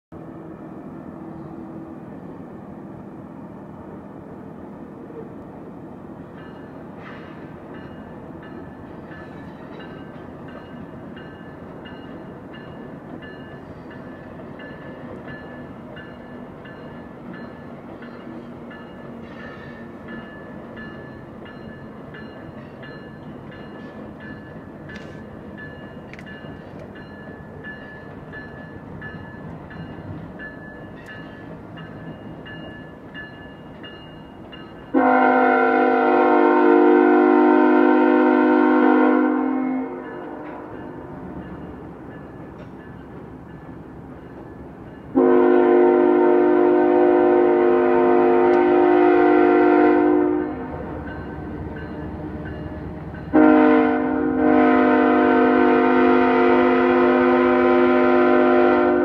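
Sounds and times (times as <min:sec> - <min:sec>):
freight train rumbling: 0:00.1 - 0:59.0
wheels clicking over rail joints: 0:41.4 - 0:45.1.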